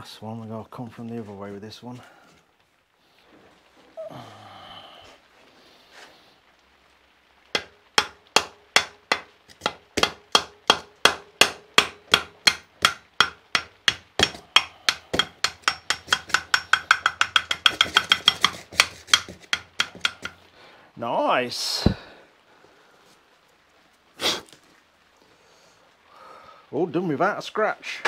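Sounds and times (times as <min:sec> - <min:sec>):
hammer tapping metal bolt: 0:07.6 - 0:20.4.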